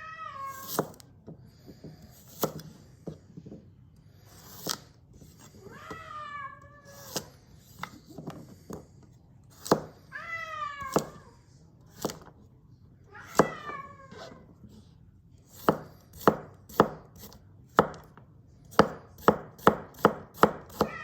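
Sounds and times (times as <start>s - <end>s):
cat meowing: 0.0s - 0.7s, 5.6s - 7.1s, 10.1s - 11.3s, 13.1s - 14.4s.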